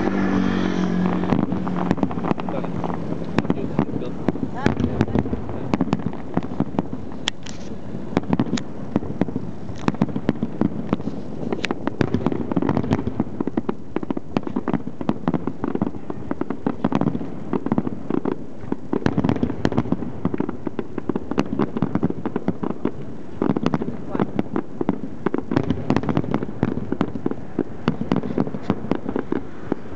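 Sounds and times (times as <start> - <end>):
low rumble: 0.0 - 7.2
fireworks crackling and popping: 0.0 - 29.9.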